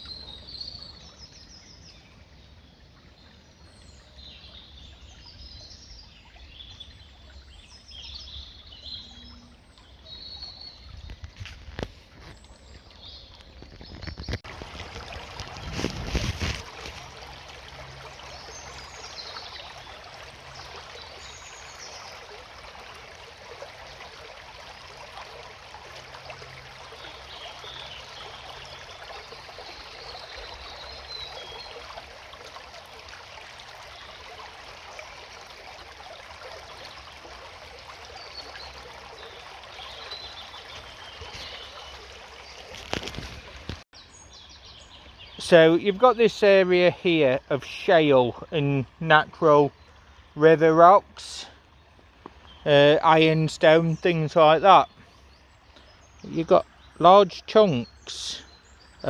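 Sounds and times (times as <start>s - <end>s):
birds chirping faintly: 0.0s - 59.0s
stream trickling: 0.0s - 59.0s.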